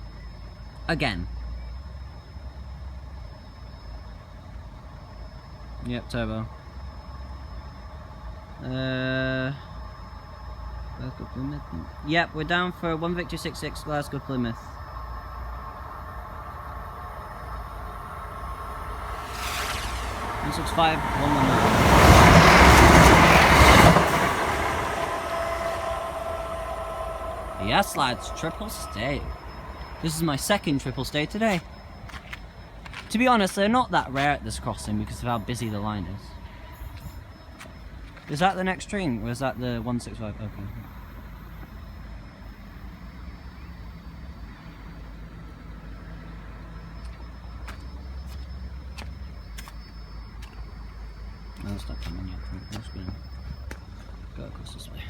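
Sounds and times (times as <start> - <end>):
low engine rumble: 5.6 - 55.0
train passing at speed: 10.7 - 39.9
train wheels rushing on rails: 11.7 - 35.8.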